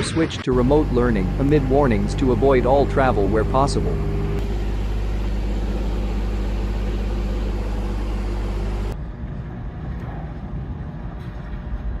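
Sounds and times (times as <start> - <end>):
rough low rumble: 0.0 - 12.0
vehicle engine running: 0.5 - 9.0.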